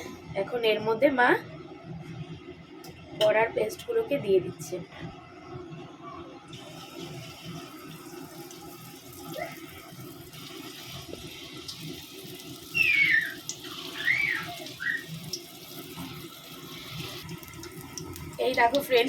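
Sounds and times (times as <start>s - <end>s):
batter sizzling in hot oil: 6.5s - 19.0s
squeaky chirps: 12.7s - 13.4s.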